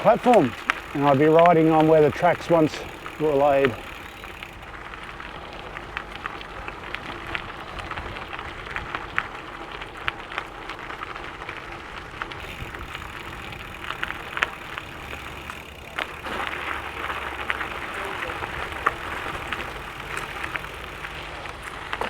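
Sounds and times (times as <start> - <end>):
bike tyres rolling on gravel: 0.0 - 22.0
stones ticking under wheels: 0.0 - 22.0.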